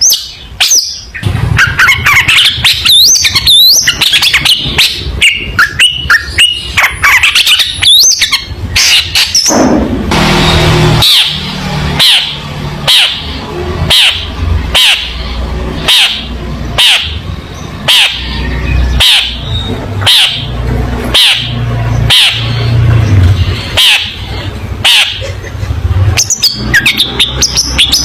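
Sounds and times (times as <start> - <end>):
steady low hum: 8.4 - 26.2.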